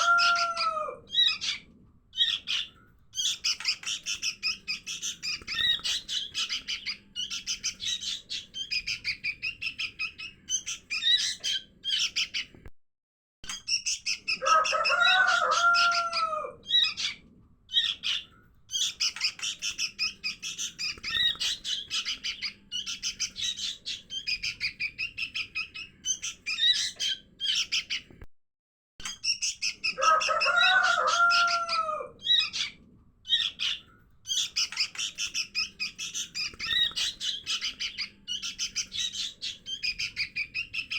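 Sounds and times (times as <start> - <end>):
lower rising and falling bird call: 0.0 - 1.6
rapid high bird chirps: 0.0 - 12.5, 16.7 - 28.1, 29.1 - 40.9.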